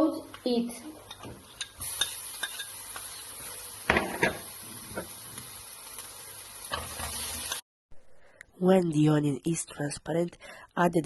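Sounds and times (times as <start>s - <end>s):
onion and garlic sizzling in oil: 0.0s - 7.6s.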